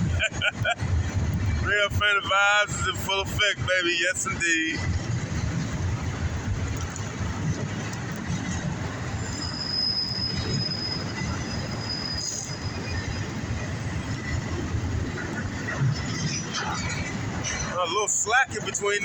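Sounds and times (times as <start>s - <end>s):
train wheels rumbling on rails: 0.0s - 19.0s
high wheel squeal: 9.0s - 14.4s.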